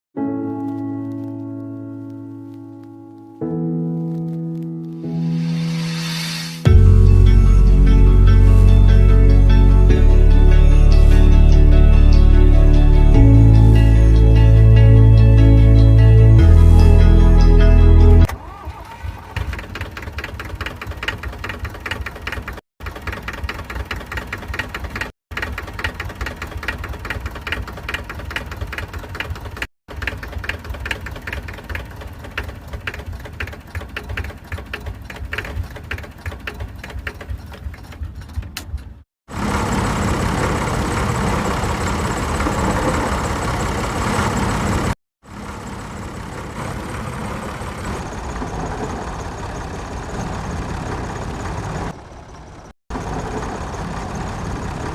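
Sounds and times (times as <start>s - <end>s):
engine chugging: 18.4s - 54.9s
rough engine noise: 19.2s - 54.9s.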